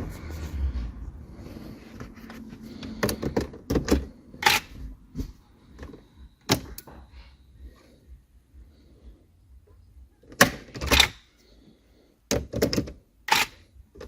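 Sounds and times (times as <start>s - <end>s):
hard objects clicking and knocking: 2.8s - 4.8s, 12.3s - 14.0s.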